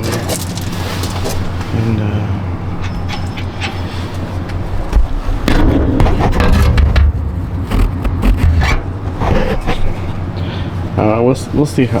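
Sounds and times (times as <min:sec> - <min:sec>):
hard parts scraping and knocking: 0:00.0 - 0:01.7, 0:02.8 - 0:10.2
steady low hum: 0:00.0 - 0:12.0.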